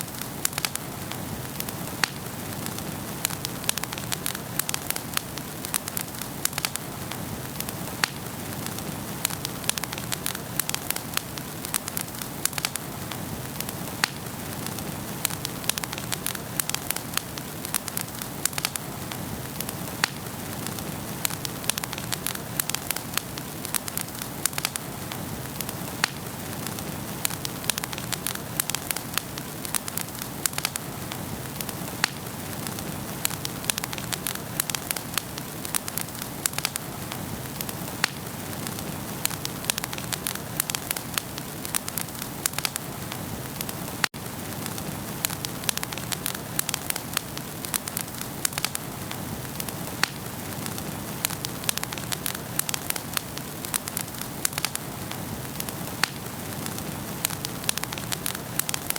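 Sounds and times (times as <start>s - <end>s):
wood fire crackling: 0.0s - 58.9s.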